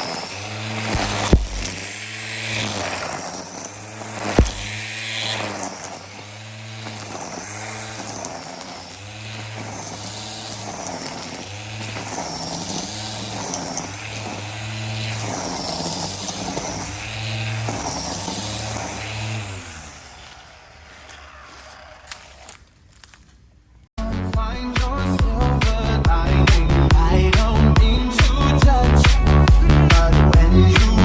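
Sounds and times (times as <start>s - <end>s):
string trimmer motor whining: 0.0s - 23.4s.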